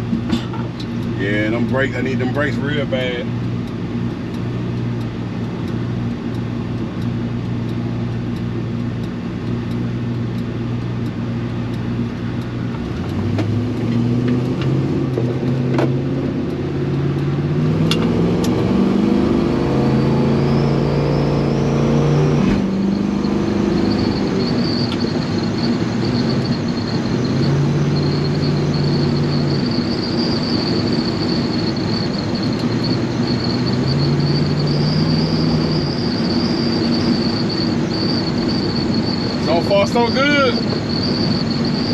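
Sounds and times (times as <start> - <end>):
truck engine accelerating: 0.0 - 41.9
thin high whistle: 27.3 - 41.9.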